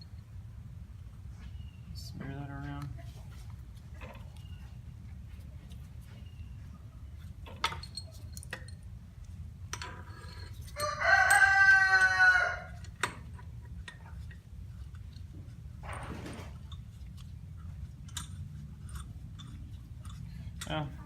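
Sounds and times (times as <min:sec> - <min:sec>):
rooster crowing: 0:10.8 - 0:12.8.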